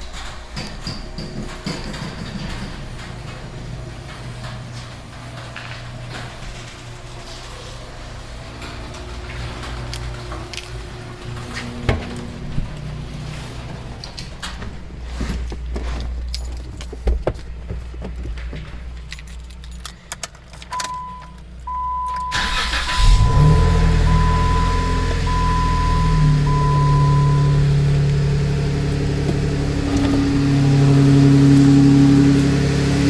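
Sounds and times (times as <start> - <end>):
keys rattling and clicking: 0.0 - 21.7
car engine idling: 7.9 - 33.0
electronic warning chime beeping: 20.8 - 29.0.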